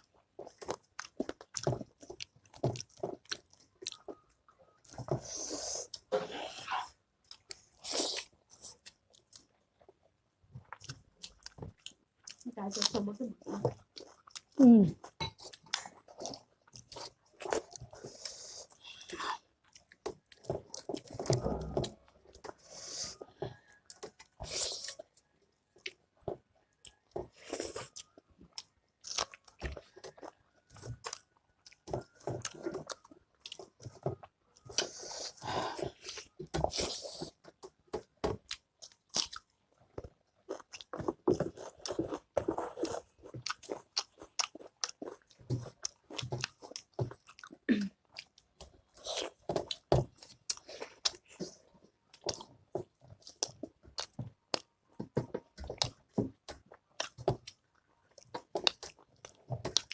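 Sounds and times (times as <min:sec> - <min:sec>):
mouth sounds of eating: 0:00.0 - 0:37.8
chewing and crunching food: 0:00.0 - 0:59.9.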